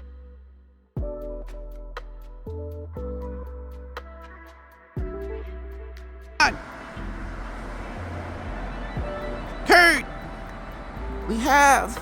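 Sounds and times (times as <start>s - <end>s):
music with ticking beat: 1.0s - 2.6s, 3.2s - 7.3s.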